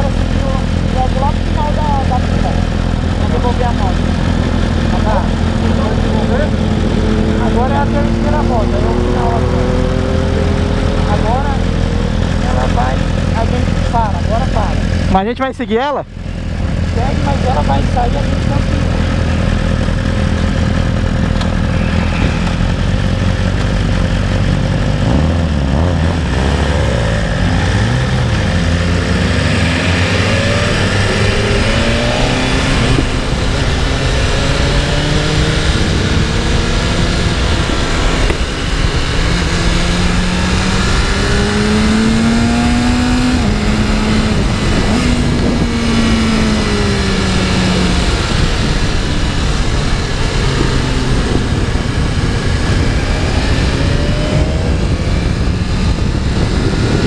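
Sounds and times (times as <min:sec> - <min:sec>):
motorcycle engine accelerating: 0:00.0 - 0:57.0
wind noise rushing: 0:19.9 - 0:25.3, 0:27.1 - 0:57.0.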